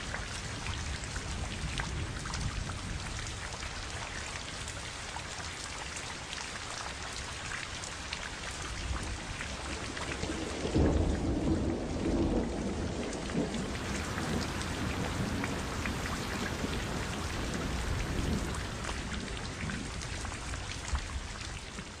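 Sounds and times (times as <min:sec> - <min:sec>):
steady rain: 0:00.0 - 0:22.0
thunder rumbling: 0:10.2 - 0:20.4
raindrops ticking: 0:13.1 - 0:21.0.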